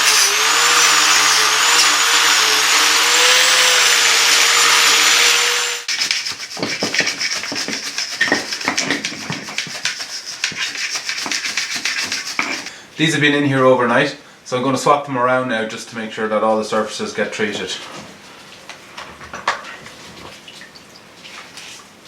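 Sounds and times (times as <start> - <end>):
power tool motor running: 0.0 - 5.9
scrubbing on metal: 5.9 - 12.7.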